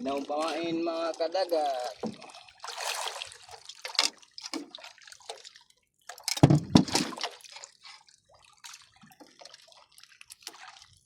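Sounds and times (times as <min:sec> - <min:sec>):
water dripping and splashing: 0:00.0 - 0:11.0
loud splash and thump: 0:06.3 - 0:07.4.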